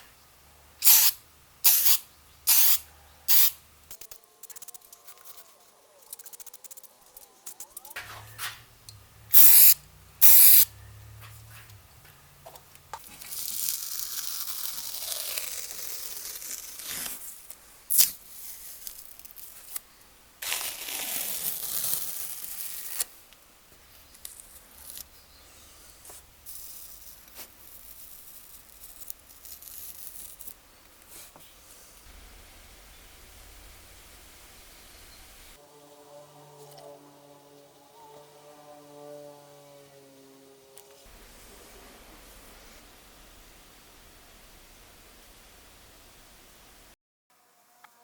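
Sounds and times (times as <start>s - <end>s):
aerosol spray can hissing: 0.8s - 3.6s, 9.3s - 10.7s
handling sounds: 3.9s - 9.4s.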